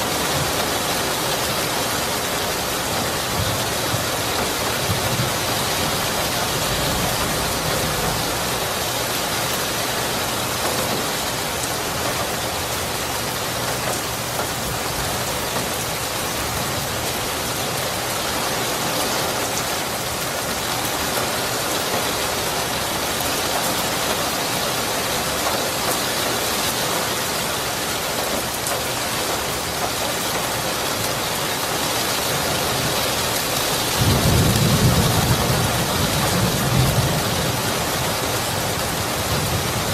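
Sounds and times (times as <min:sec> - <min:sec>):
dense rain falling: 0:00.0 - 0:39.9
low thunder rumble: 0:03.2 - 0:08.8, 0:33.9 - 0:39.9.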